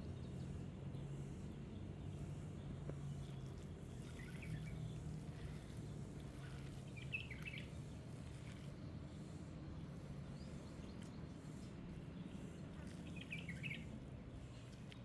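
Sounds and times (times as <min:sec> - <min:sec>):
faint bird chirps: 0:13.0 - 0:13.9.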